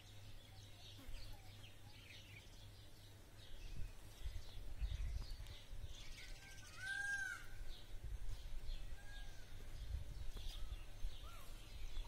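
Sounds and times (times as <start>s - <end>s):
small birds chirping: 0.0s - 12.0s
low rumble on microphone: 3.4s - 6.3s, 6.9s - 12.0s.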